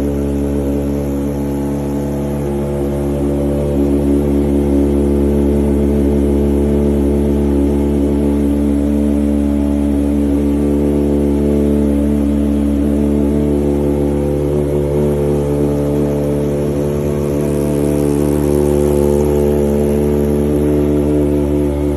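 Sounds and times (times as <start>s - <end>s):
motorcycle engine running steadily: 0.0s - 21.9s.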